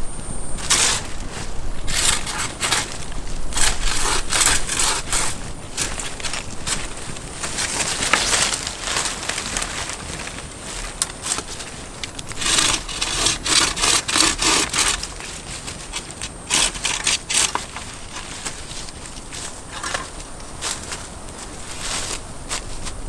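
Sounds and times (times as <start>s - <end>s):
wood rasping strokes: 0.6s - 8.2s, 12.2s - 20.1s.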